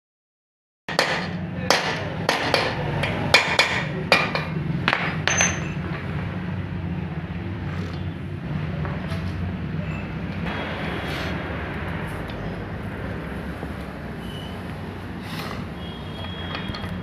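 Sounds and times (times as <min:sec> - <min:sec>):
sharp metallic knocks: 0:00.9 - 0:06.0.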